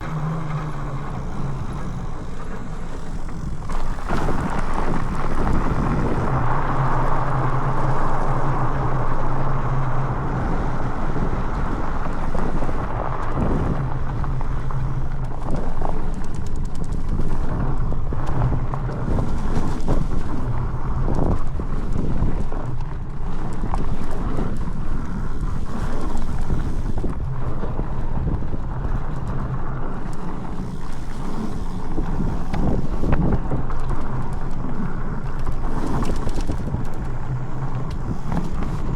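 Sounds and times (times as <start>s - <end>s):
bike tyres rolling on dirt: 0.0s - 38.9s
wind buffeting microphone: 0.0s - 38.9s.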